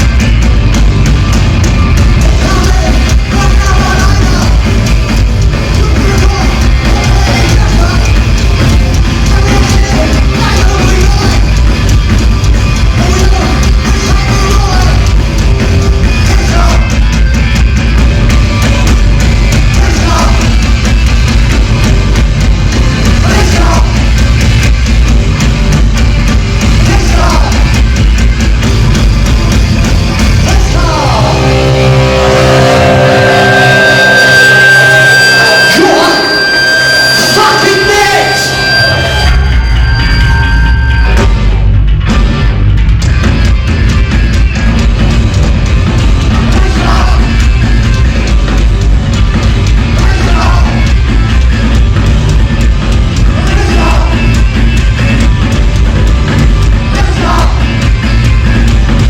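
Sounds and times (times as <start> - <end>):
distorted guitars: 0.0 - 59.0
drums: 0.0 - 59.0
shouted vocals: 19.7 - 20.6, 23.2 - 24.0, 26.8 - 27.7, 56.8 - 57.8
held guitar notes ringing: 28.7 - 42.4.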